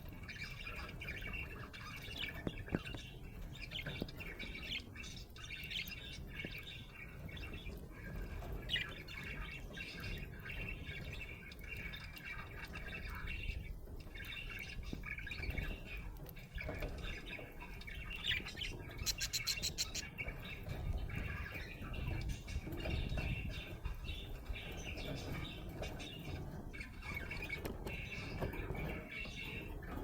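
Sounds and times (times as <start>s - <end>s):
budgerigar chirping: 17.4s - 22.2s.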